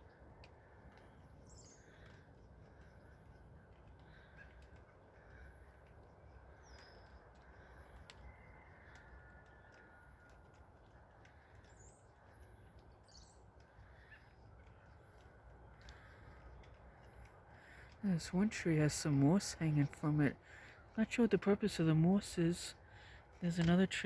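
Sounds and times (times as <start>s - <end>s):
low steady rumble: 0.0s - 23.9s
faint bird chirps: 0.9s - 5.8s, 6.4s - 10.0s.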